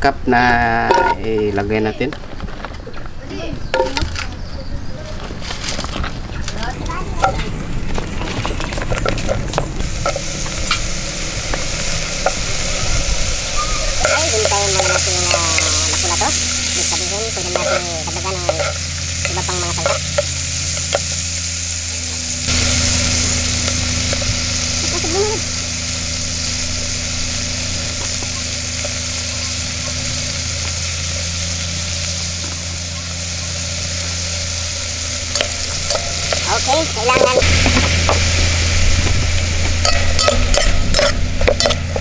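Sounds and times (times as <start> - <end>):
onions sizzling in hot oil: 7.2 - 42.0
drawn-out pitched call: 12.6 - 20.0, 26.7 - 31.6.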